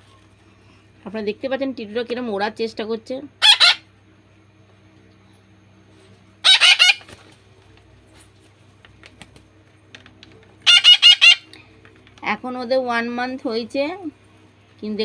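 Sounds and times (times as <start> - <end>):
parakeet chicks calling: 3.4 - 3.9, 6.4 - 7.2, 10.6 - 11.8.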